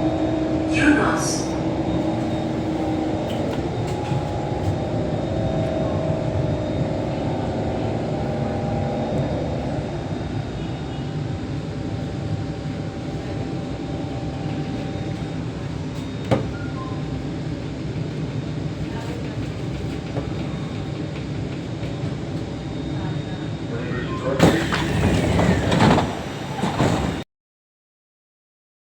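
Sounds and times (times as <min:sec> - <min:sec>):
train carriage rumble and hum: 0:00.0 - 0:27.2.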